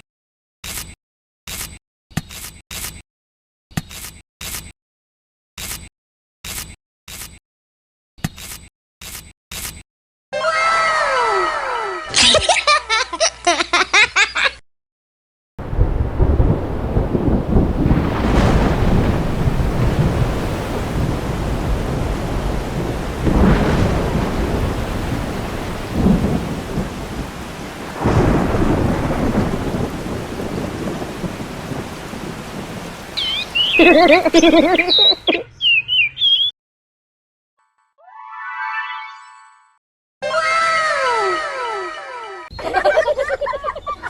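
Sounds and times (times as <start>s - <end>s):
thunder rolling: 15.6s - 35.2s
rain falling steadily: 15.6s - 35.3s
warbling bird chirps: 33.1s - 36.6s.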